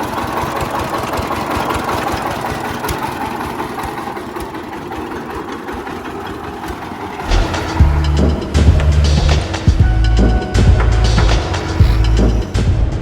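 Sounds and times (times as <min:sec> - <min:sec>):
small generator engine running: 0:00.0 - 0:13.0
music with deep bass: 0:07.2 - 0:13.0.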